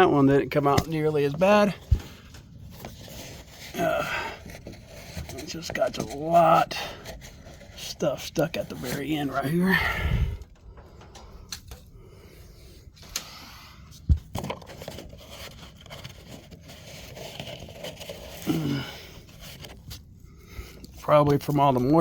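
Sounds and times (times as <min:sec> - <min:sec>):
lint scraping and tearing: 0:00.6 - 0:09.6, 0:14.4 - 0:21.8.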